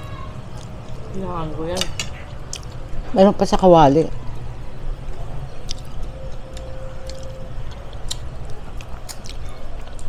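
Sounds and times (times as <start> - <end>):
wet chewing and lip smacks: 5.6 - 10.0.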